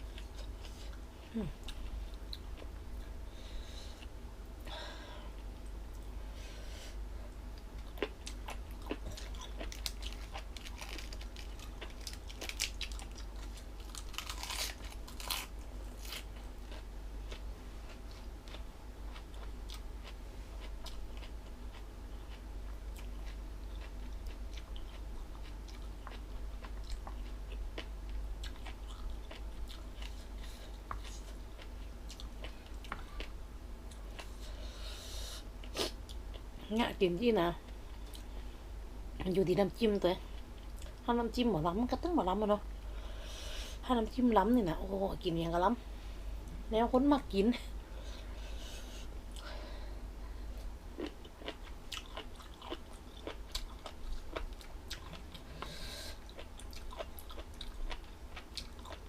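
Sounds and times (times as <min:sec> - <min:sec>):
steady low hum: 0:00.0 - 0:59.0
person chewing crunchy food: 0:07.3 - 0:36.5, 0:50.5 - 0:59.0.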